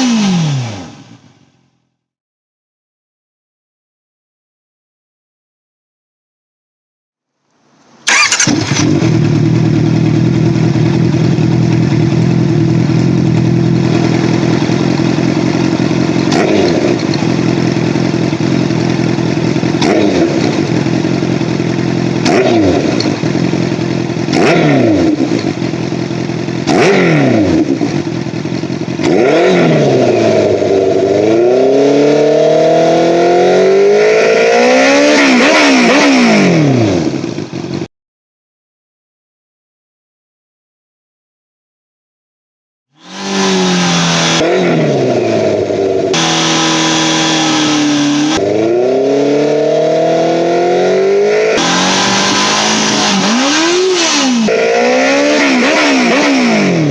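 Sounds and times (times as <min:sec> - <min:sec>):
engine held at high revs: 0:00.0 - 0:01.3, 0:08.1 - 0:37.9, 0:43.0 - 0:56.9
motorcycle engine starting: 0:08.0 - 0:37.9, 0:43.0 - 0:56.9
motorcycle engine idling: 0:08.1 - 0:29.4, 0:37.0 - 0:37.8.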